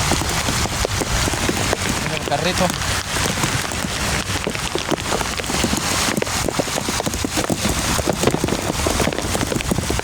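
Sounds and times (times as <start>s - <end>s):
heavy rain falling: 0.0s - 10.0s.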